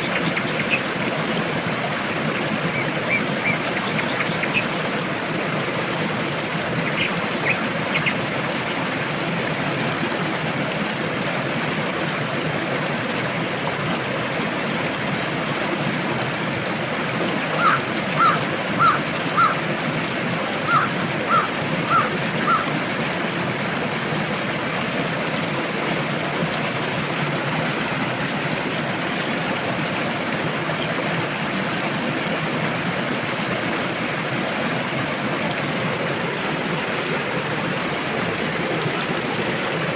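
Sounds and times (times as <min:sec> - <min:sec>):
bird calling: 0:00.0 - 0:01.0, 0:02.7 - 0:04.8, 0:06.8 - 0:08.2, 0:17.6 - 0:19.6, 0:20.6 - 0:22.7
river water rushing: 0:00.0 - 0:39.9.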